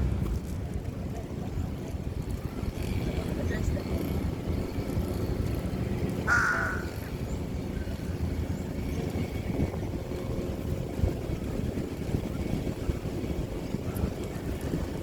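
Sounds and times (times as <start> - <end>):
wind rumble on microphone: 0.0 - 15.0
bird harsh caw-like call: 6.3 - 7.1.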